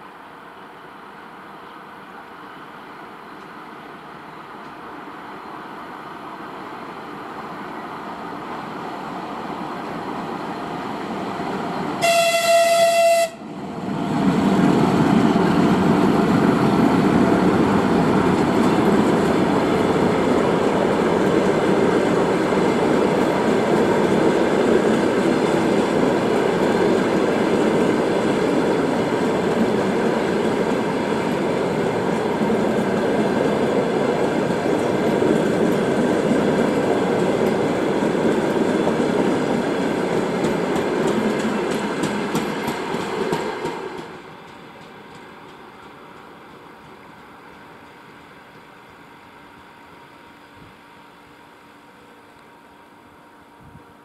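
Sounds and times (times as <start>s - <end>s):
train wheels on rails: 0.0s - 54.0s
train horn blast: 12.0s - 13.5s.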